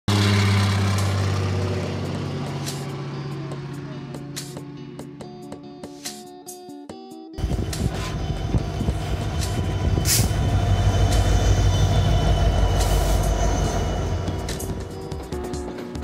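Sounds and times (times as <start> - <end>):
diesel locomotive engine rumble: 0.1 - 4.4, 7.4 - 15.8
rolling rail noise: 7.4 - 15.9.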